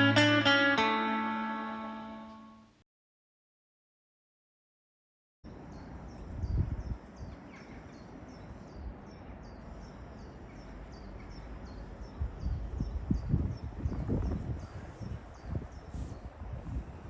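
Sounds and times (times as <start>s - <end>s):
wind rumbling on microphone: 6.1s - 7.5s, 11.8s - 17.0s.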